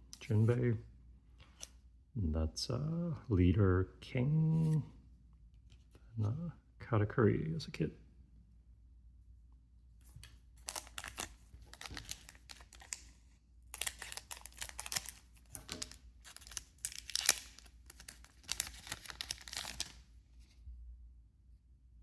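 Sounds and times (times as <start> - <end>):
foil wrapper tearing and crinkling: 10.6 - 13.1, 13.7 - 20.0.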